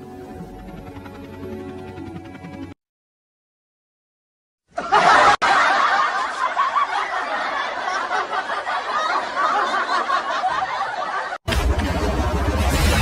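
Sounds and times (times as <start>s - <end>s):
crowd laughing and chattering: 4.8s - 12.4s.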